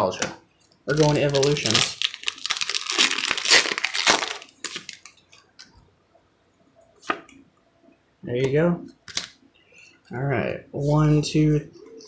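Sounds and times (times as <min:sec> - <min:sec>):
foil wrapper crinkling and tearing: 0:00.9 - 0:05.2.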